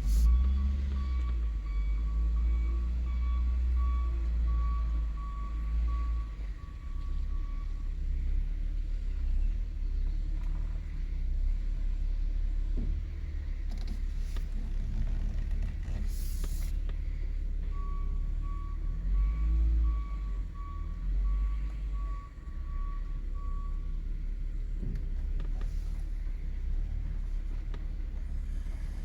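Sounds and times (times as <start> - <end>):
backup alarm beeping: 0.0 - 7.8, 17.7 - 23.9
vehicle engine rumble: 0.0 - 29.0.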